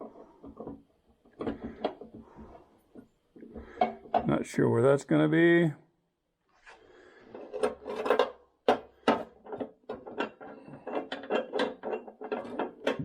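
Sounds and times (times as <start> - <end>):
metal parts clicking and clanking: 9.0 - 13.0.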